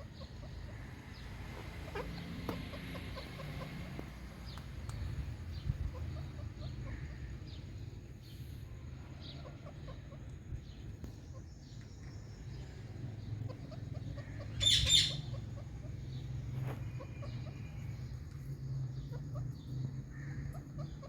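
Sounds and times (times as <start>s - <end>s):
faint chirps: 0.0s - 21.0s
parrot screeching: 14.5s - 15.4s.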